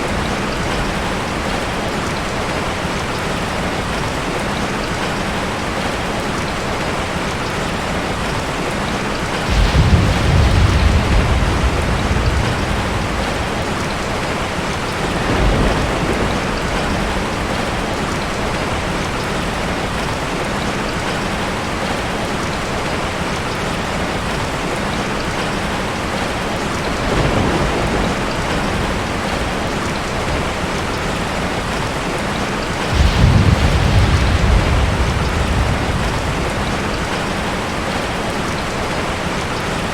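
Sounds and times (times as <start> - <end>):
steady rain: 0.0 - 39.9
thunder rumbling: 9.3 - 21.1, 26.8 - 39.6.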